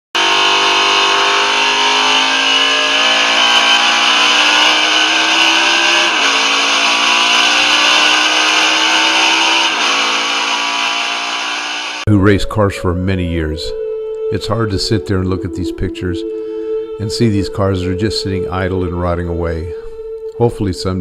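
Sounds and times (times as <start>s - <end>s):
race car engine accelerating: 0.1s - 12.1s.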